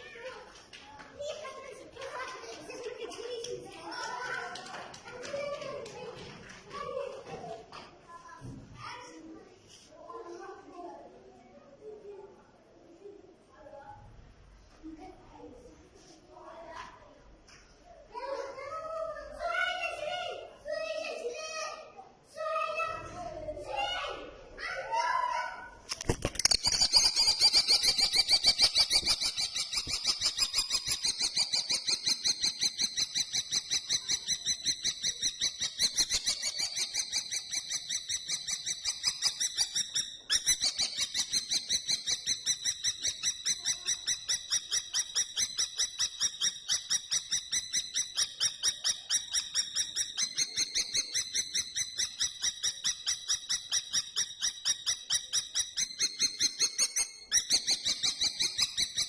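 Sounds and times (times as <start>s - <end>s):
kestrel calling: 26.3s - 59.0s.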